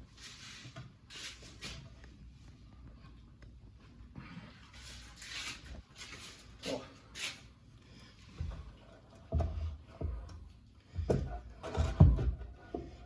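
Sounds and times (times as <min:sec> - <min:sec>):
dull thumps and knocks: 0:08.4 - 0:13.0.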